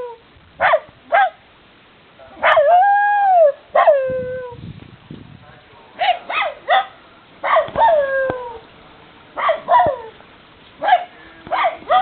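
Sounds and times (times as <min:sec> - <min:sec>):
dog barking and yipping: 0:00.6 - 0:01.4, 0:02.4 - 0:02.7, 0:06.0 - 0:08.1, 0:09.4 - 0:10.1, 0:10.8 - 0:12.0.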